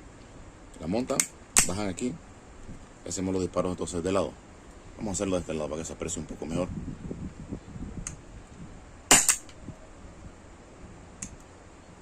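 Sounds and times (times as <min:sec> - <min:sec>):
air pistol double crack: 0:01.2 - 0:01.8, 0:09.1 - 0:09.6.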